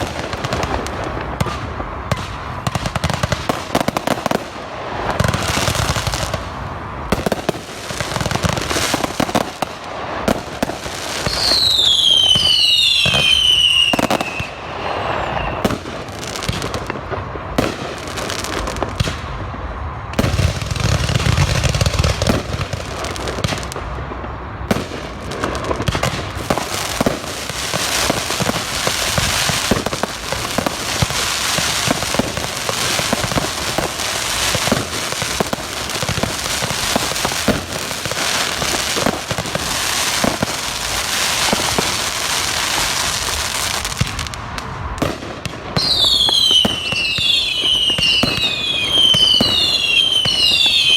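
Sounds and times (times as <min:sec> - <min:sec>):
fireworks bursting and crackling: 0:00.0 - 0:50.9
whistling fireworks falling in pitch: 0:00.0 - 0:50.9.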